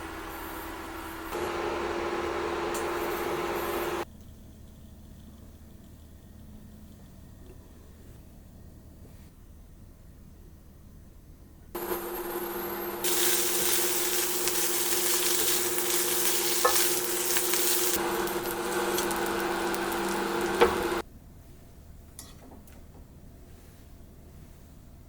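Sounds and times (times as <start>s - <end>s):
food sizzling in a pan: 11.8s - 21.0s.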